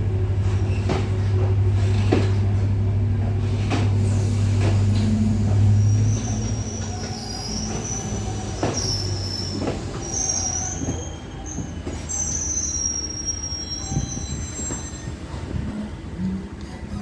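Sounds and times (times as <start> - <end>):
moving train rumble: 0.0 - 17.0
train wheels squealing: 4.6 - 15.4.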